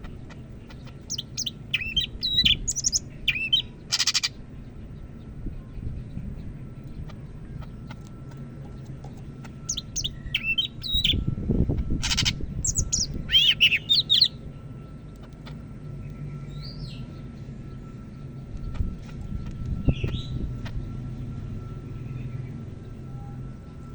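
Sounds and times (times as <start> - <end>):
bird singing whistled phrases: 1.1 - 4.3, 9.7 - 11.2, 12.0 - 14.3.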